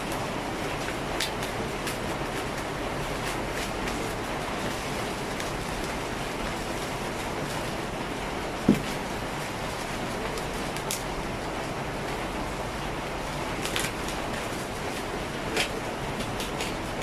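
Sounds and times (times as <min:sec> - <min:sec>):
box knocked down dull bump: 0:08.7 - 0:08.9.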